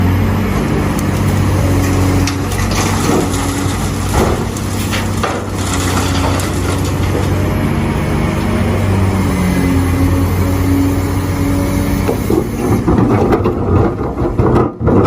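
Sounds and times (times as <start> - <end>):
excavator diesel engine running: 0.0 - 15.0
bucket crunching and scraping: 1.0 - 9.1, 12.0 - 15.0.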